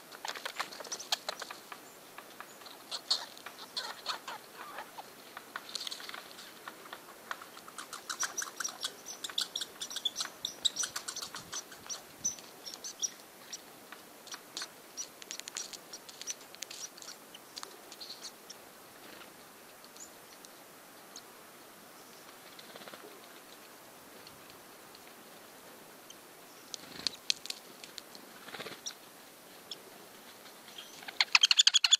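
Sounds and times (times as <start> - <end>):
woodpecker tapping: 0.2 - 13.6.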